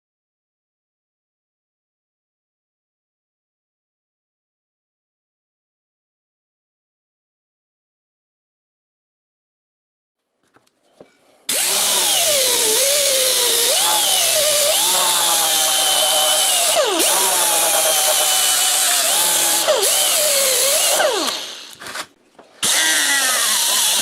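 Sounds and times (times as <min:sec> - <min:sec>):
power tool running: 0:11.5 - 0:24.0.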